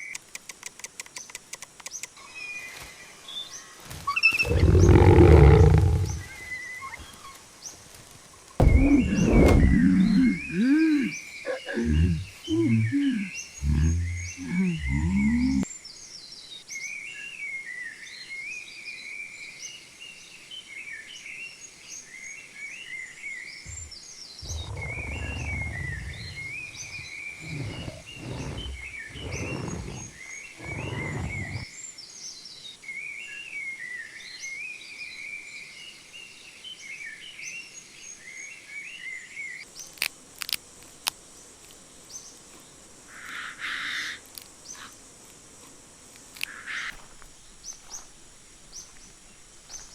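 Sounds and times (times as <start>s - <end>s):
sharp clicks: 0.0s - 2.2s
high insect hiss: 0.0s - 49.9s
birds chirping and warbling: 1.1s - 7.8s, 8.4s - 18.4s, 21.1s - 39.9s
low rumbles: 8.6s - 10.7s, 23.7s - 31.6s.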